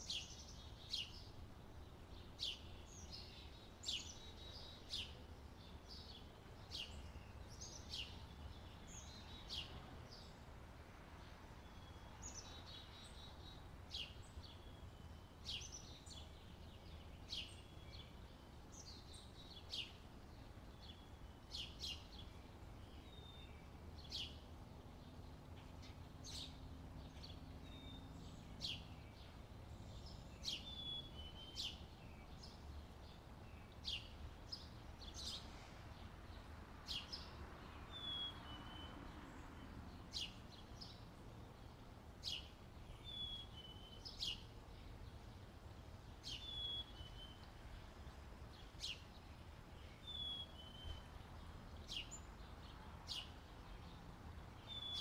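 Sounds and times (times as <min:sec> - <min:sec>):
birds chirping: 0:11.2 - 0:55.0
whistled bird notes: 0:37.9 - 0:38.9, 0:46.2 - 0:47.4, 0:50.0 - 0:51.0.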